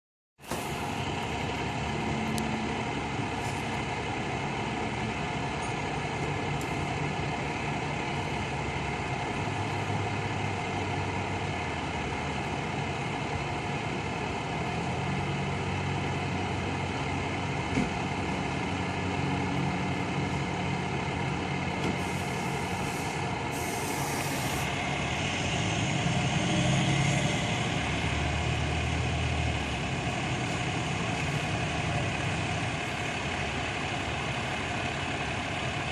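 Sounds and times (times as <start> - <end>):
diesel engines idling: 0.4 - 35.9
air brake hisses: 21.8 - 24.8.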